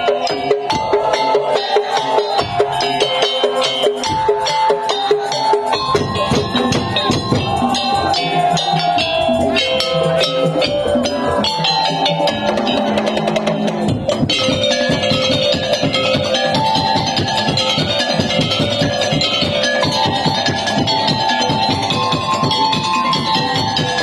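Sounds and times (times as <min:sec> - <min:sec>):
wooden percussion and drums: 0:00.0 - 0:24.0.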